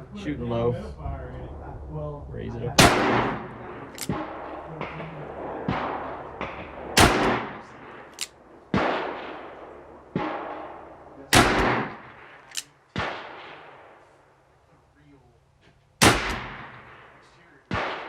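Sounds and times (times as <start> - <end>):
revolver gunshots echoing: 2.8 - 14.2, 16.0 - 18.0
quieter gunshots: 2.8 - 14.5, 16.0 - 18.0.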